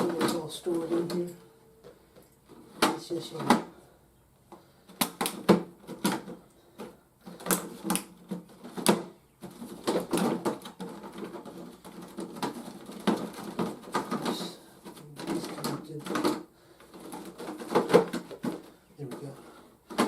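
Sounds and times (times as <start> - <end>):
plastic pieces rattling: 5.1 - 20.0.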